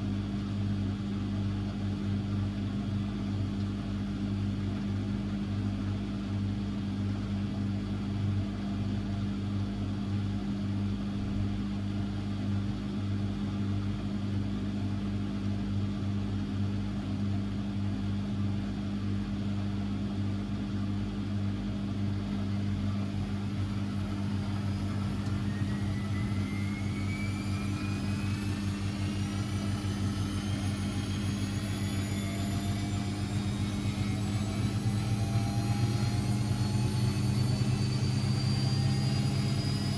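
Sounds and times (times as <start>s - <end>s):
washing machine humming: 0.0s - 39.9s
motor whine rising in pitch: 22.2s - 39.9s.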